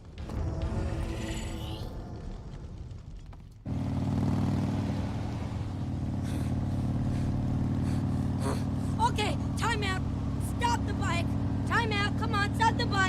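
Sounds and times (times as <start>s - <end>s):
low rumble: 0.0s - 8.0s
vehicle engine running: 0.0s - 13.0s.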